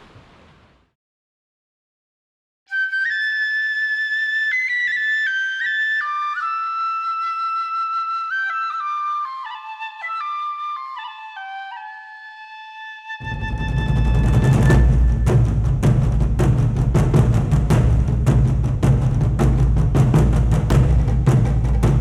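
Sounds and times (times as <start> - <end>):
solo flute melody: 2.7 - 15.6.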